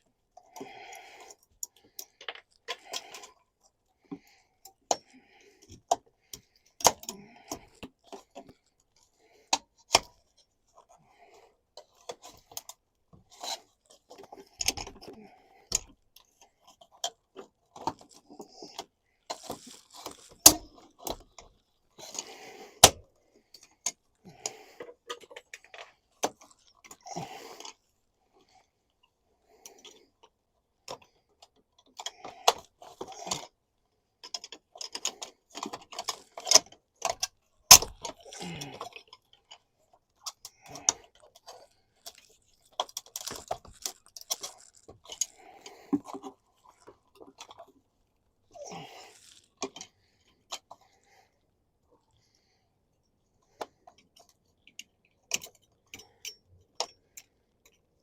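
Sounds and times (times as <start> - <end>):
hand tool clicks and rattles: 17.0 - 27.8, 34.2 - 47.7, 54.1 - 57.8.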